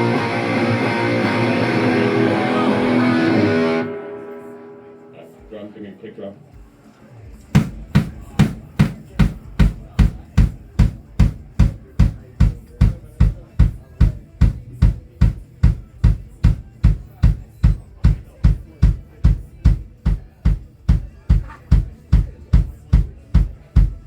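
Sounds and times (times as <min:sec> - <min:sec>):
kick drum thuds: 0:07.5 - 0:24.0.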